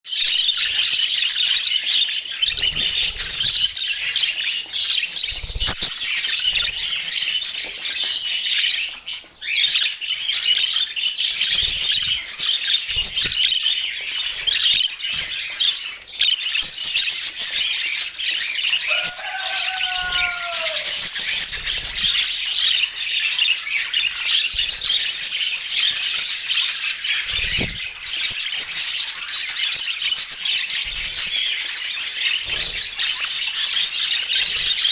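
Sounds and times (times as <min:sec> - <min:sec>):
budgerigars chattering and warbling: 0:00.1 - 0:34.9
low falling bird call: 0:18.8 - 0:21.1.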